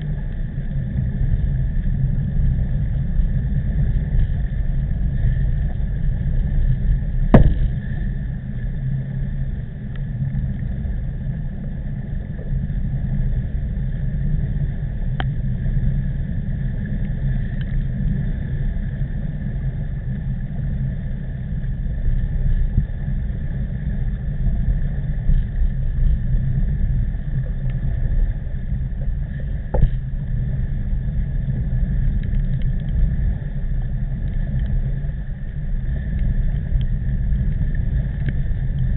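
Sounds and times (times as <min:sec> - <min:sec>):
faint even whine: 0:00.0 - 0:38.9
wind buffeting microphone: 0:02.6 - 0:08.6
sharp knock of bike jolting: 0:07.3 - 0:07.8.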